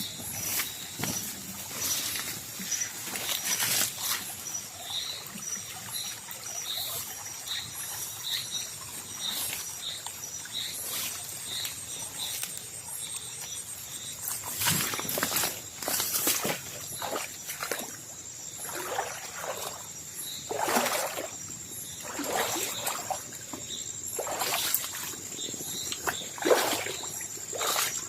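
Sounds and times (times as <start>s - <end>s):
rustling leaves: 0.0s - 5.2s, 7.6s - 18.5s
pulsed insect chirp: 0.0s - 28.0s.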